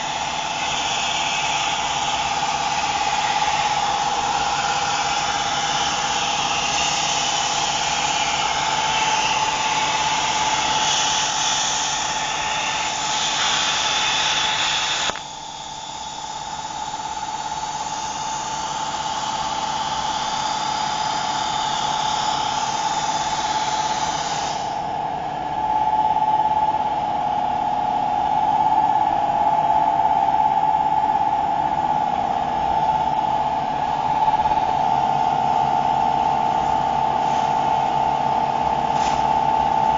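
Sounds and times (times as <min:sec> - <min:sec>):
machine motor whine: 0:00.0 - 0:39.9
cutting noise hiss: 0:04.9 - 0:15.4.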